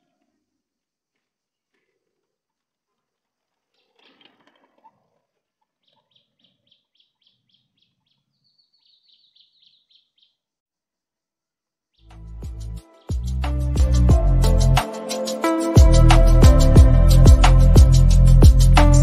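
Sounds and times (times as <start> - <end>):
faint birdsong: 3.6 - 10.5.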